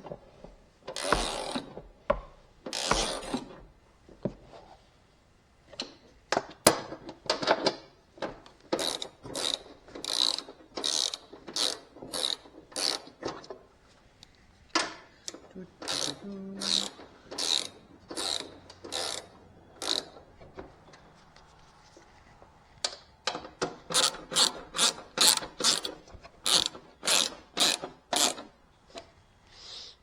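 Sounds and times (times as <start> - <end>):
ratchet wrench strokes: 15.8 - 20.2, 23.9 - 28.5.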